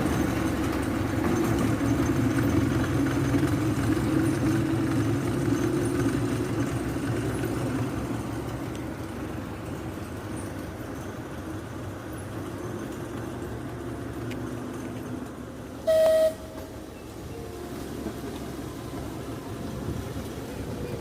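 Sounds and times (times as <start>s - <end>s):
train rumbling: 0.0s - 21.0s
train whistle toot: 15.8s - 18.2s.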